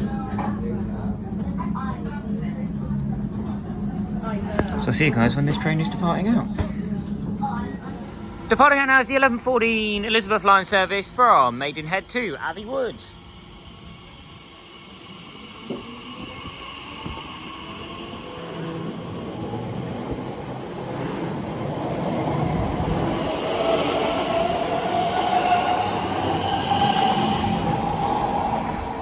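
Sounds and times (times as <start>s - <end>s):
electric train motor whine: 11.0s - 29.0s.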